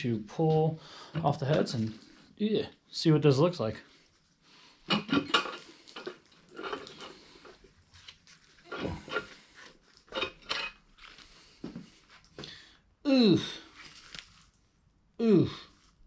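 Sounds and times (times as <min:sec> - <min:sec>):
metal clanks of tools and engine parts: 0:04.9 - 0:07.0, 0:08.7 - 0:09.4, 0:10.1 - 0:10.8.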